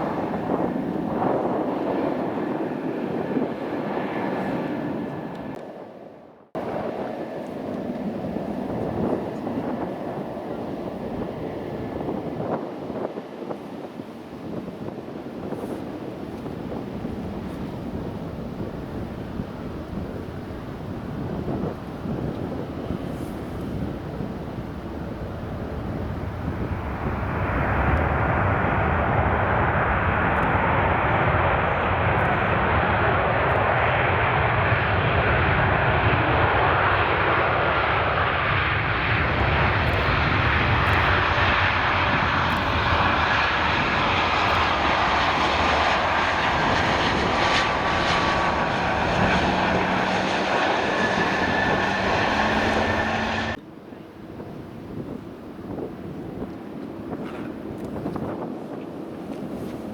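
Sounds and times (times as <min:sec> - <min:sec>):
jet engines roaring: 0:00.0 - 0:59.9
faint engine whine: 0:17.0 - 0:54.6.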